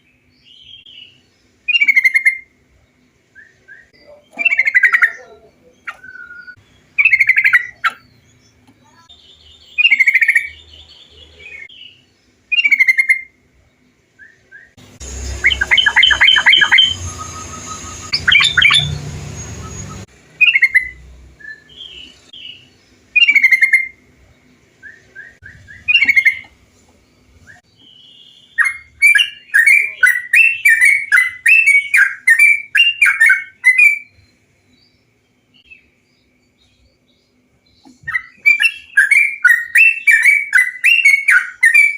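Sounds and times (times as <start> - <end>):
bird chattering song: 0.0 - 41.9
bird calls bubbly notes: 15.2 - 22.1, 24.9 - 26.5.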